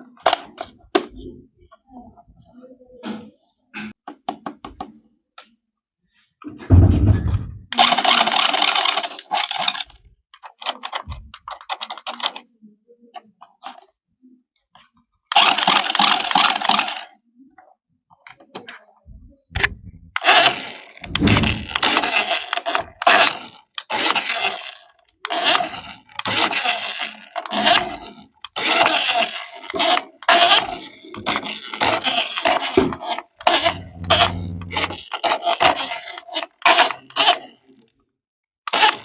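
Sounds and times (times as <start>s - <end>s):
low buzz: 33.6s - 35.0s.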